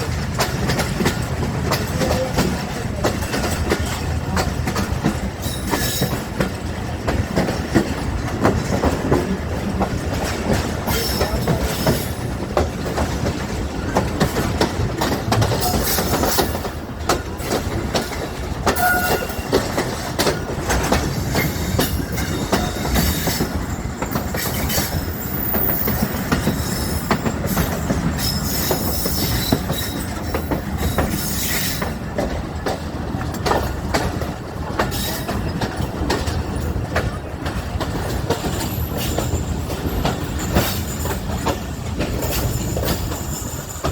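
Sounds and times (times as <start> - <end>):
train wheels clattering over rail joints: 0.0 - 43.9
high wheel squeals: 18.8 - 19.6.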